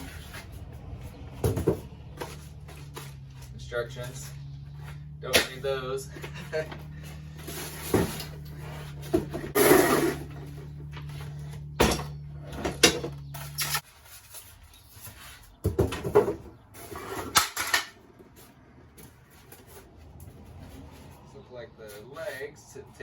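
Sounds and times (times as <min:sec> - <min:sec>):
cardboard and packaging rustling: 0:13.4 - 0:17.4.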